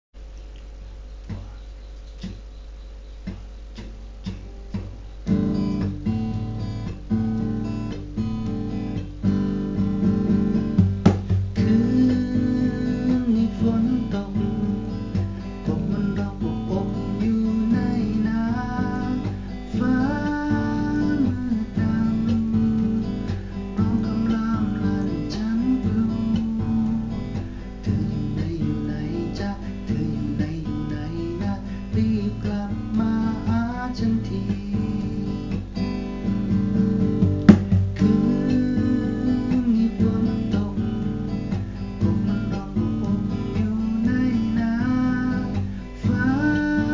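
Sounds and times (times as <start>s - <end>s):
acoustic guitar tune: 0.2s - 46.9s
steady low hum: 0.2s - 46.9s
faint clicks: 0.3s - 5.0s.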